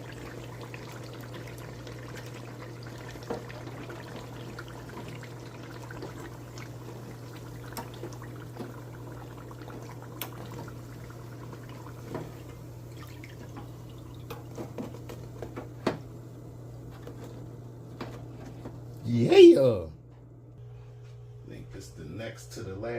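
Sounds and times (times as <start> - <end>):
dough deep-frying in oil: 0.0 - 17.8.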